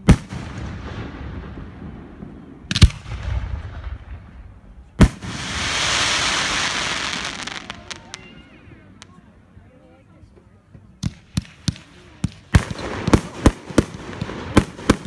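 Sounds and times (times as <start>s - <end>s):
firework bangs: 0.0s - 9.1s, 11.0s - 15.0s
firework hiss: 5.0s - 8.4s
scattered firework pops: 11.0s - 15.0s.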